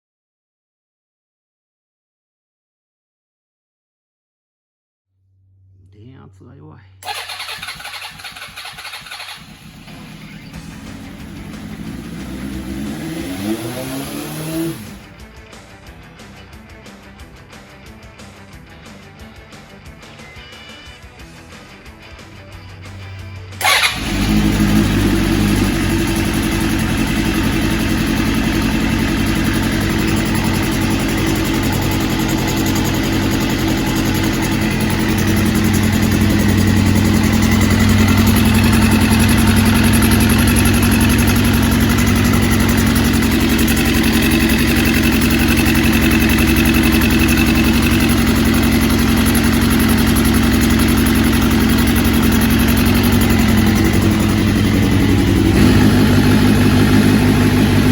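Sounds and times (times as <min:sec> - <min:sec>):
motorcycle engine starting and idling: 0:07.0 - 0:15.3, 0:22.9 - 0:57.9.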